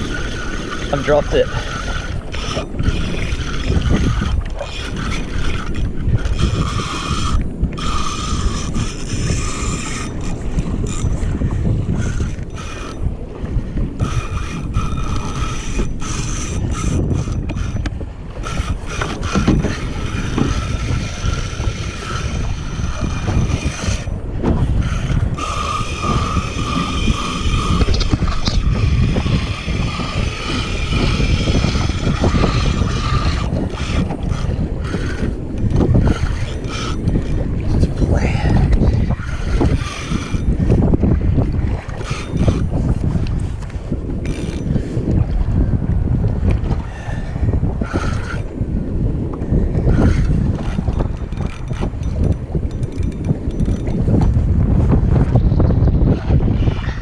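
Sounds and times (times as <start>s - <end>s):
fishing reel whirring: 0.0s - 57.0s
water: 0.0s - 57.0s
wind rumble on microphone: 0.0s - 57.0s.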